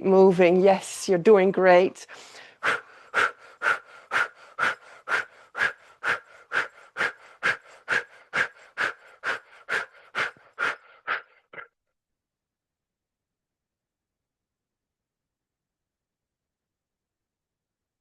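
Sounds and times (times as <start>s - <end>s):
rhythmic breathing through mouth: 2.0s - 11.8s.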